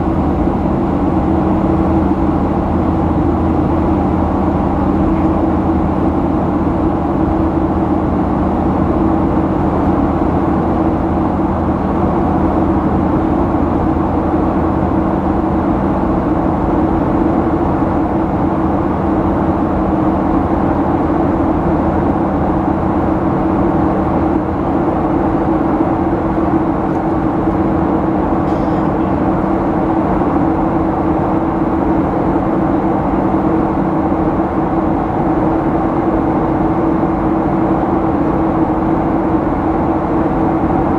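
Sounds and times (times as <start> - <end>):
jet engine cabin drone: 0.0 - 40.9.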